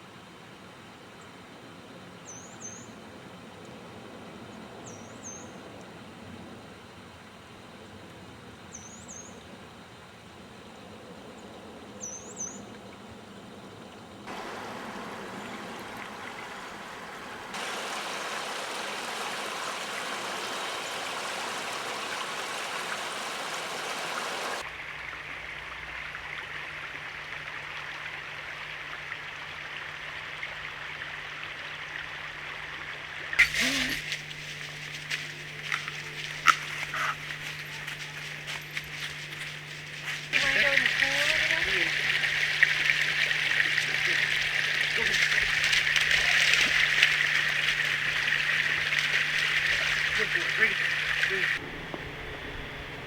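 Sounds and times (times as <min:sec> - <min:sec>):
stream water flowing: 0:14.3 - 0:53.0
bird chirping: 0:33.4 - 0:53.0
steady low hum: 0:33.4 - 0:53.0.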